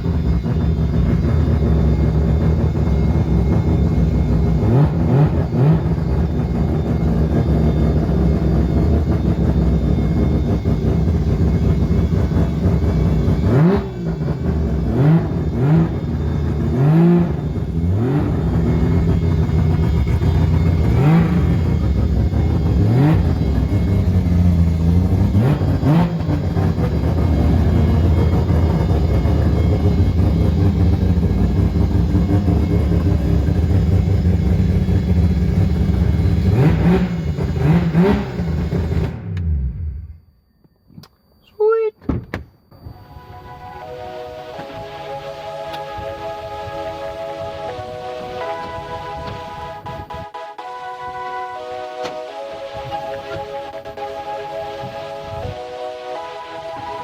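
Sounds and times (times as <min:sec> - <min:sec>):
car engine idling: 0:00.0 - 0:40.3
engine throttle blips: 0:00.0 - 0:57.0.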